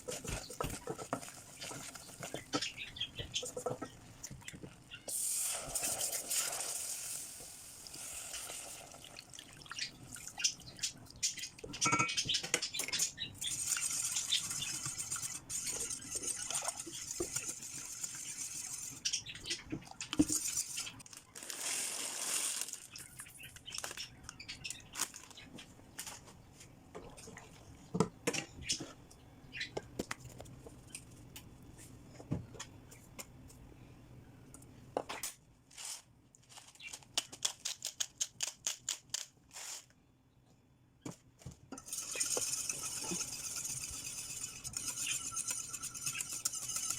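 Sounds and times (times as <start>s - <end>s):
hissing in pan: 5.1s - 8.9s.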